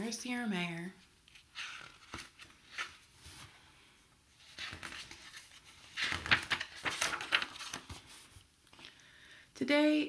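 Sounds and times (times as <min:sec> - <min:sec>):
book pages rustling: 0:01.2 - 0:03.7, 0:04.3 - 0:08.8.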